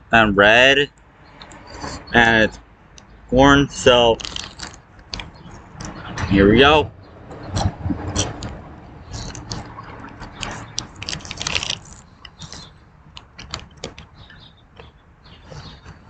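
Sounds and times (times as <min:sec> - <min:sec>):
person chewing crunchy popcorn: 0:04.2 - 0:05.2, 0:09.1 - 0:14.1.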